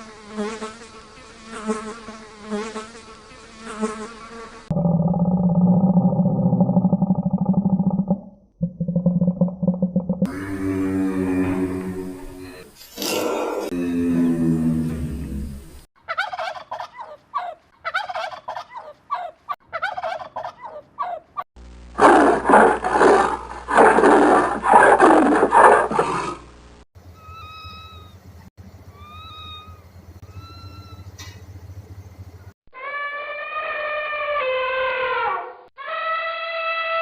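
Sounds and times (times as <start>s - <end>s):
low hum: 4.7s - 12.8s
low falling animal call: 4.7s - 15.7s, 27.1s - 31.4s, 32.7s - 37.0s
turkey gobbling: 16.1s - 21.2s
loud dense animal calling: 27.1s - 28.2s, 28.9s - 31.1s.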